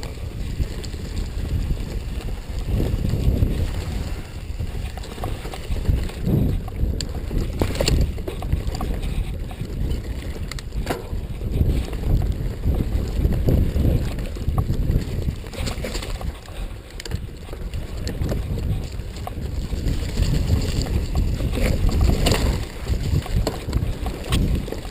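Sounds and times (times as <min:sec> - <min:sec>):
bike knocks and rattles: 0:00.0 - 0:24.9
wind buffeting microphone: 0:00.0 - 0:24.9.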